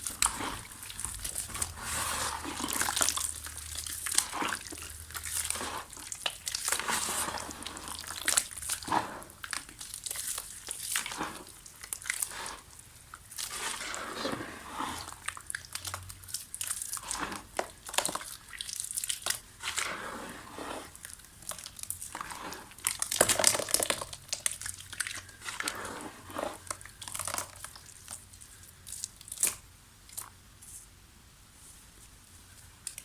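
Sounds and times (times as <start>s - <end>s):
dried mud crumbling and crunching: 0.0s - 29.6s.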